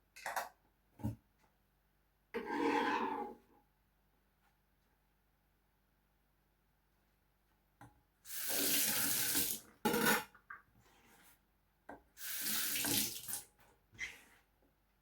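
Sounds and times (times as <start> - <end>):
tap water running into sink: 8.3 - 9.6, 12.2 - 13.5.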